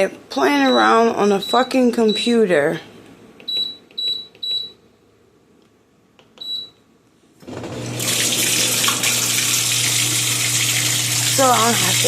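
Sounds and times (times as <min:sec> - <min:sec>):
dishwasher beeps: 0:00.6 - 0:02.3, 0:03.5 - 0:04.8, 0:06.4 - 0:06.8
pump humming: 0:07.4 - 0:12.0
water rushing through pump: 0:07.5 - 0:12.0.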